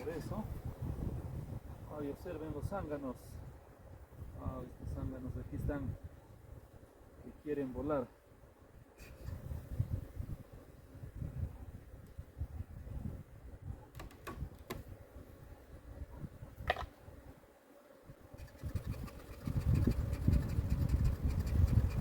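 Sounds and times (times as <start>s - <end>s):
wind buffeting microphone: 0.0s - 6.8s, 9.0s - 17.3s, 18.1s - 22.0s.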